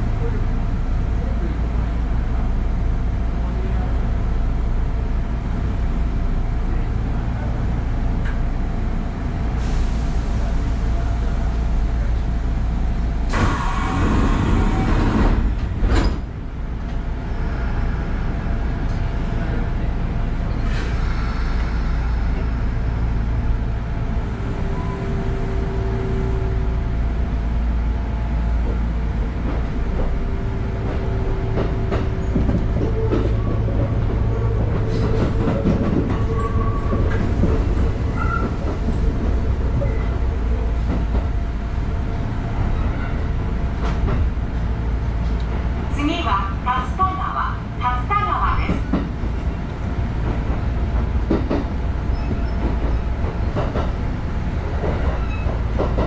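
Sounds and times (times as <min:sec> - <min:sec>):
train doors closing with air hiss: 0:09.5 - 0:11.3, 0:13.2 - 0:16.3, 0:20.5 - 0:23.1.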